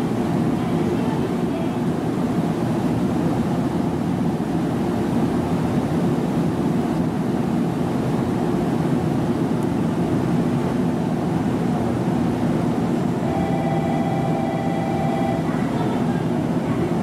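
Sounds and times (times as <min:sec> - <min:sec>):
train equipment humming: 0:12.4 - 0:17.0.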